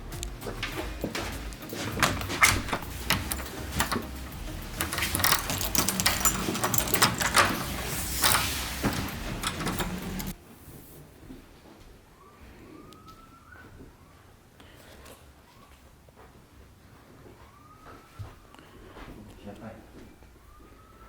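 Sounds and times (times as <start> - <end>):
objects knocking and clattering: 0.2 - 10.4.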